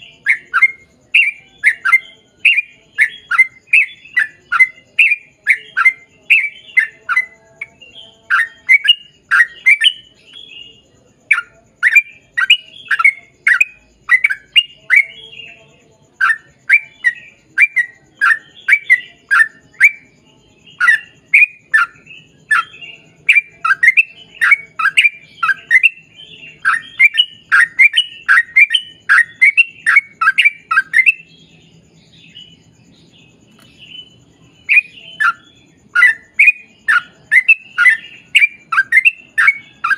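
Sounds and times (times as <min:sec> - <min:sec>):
bulbul singing rapid notes: 0:16.1 - 0:39.9.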